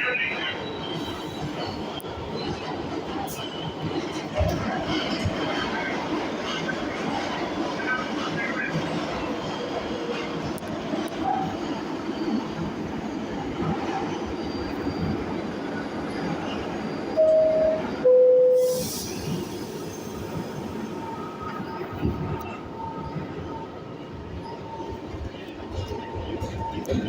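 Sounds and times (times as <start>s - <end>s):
subway train rumbling: 0.0s - 27.0s.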